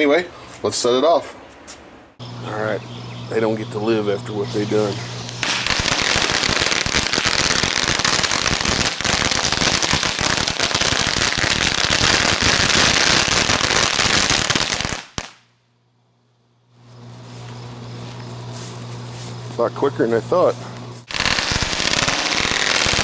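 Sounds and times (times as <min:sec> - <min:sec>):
firecrackers crackling: 0:04.8 - 0:15.5, 0:21.0 - 0:23.0.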